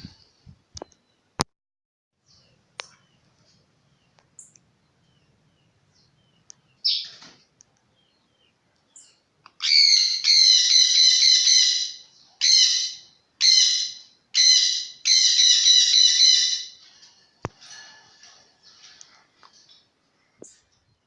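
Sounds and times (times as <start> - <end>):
parakeet squawking: 9.6 - 16.7.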